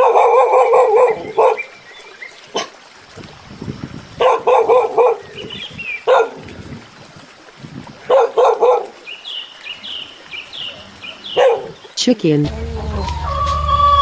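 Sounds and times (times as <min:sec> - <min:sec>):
dog barking: 0:00.0 - 0:01.7, 0:04.2 - 0:05.2, 0:06.1 - 0:06.4, 0:08.1 - 0:08.9, 0:11.3 - 0:11.8.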